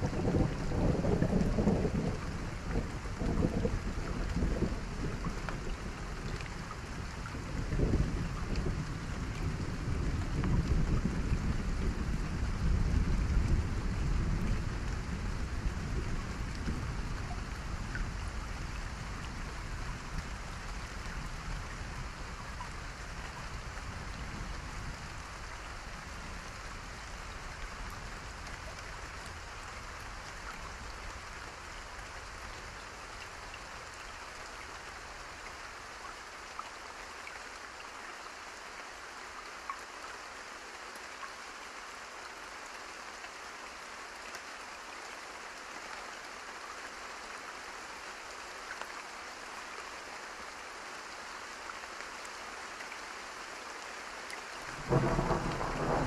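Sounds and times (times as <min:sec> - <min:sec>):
low thunder rumble: 0:00.0 - 0:06.3, 0:54.7 - 0:56.0
steady rain with drop ticks: 0:00.0 - 0:56.0.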